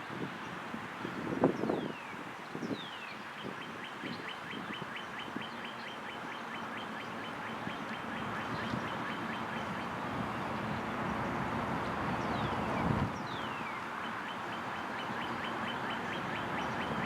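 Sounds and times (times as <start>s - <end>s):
bird calling: 1.7s - 10.6s, 12.2s - 17.0s
steady rushing noise: 7.3s - 17.0s.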